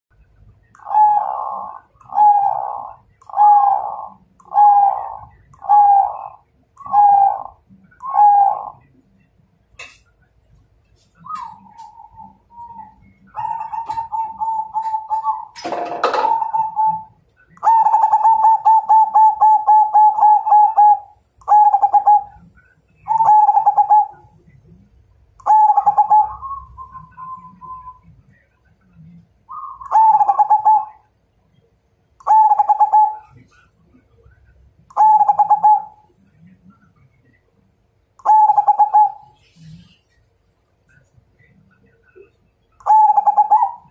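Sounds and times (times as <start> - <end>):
dove cooing: 0.8 - 8.9, 11.2 - 24.3, 25.4 - 28.0, 29.5 - 31.0, 32.2 - 33.6, 34.9 - 36.1, 38.2 - 40.0, 42.8 - 43.9.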